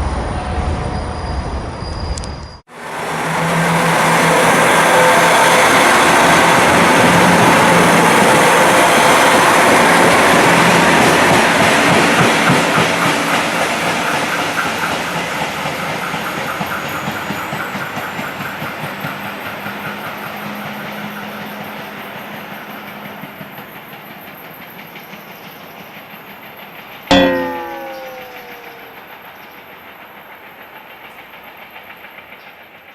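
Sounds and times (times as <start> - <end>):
diesel train running: 2.8 - 27.0.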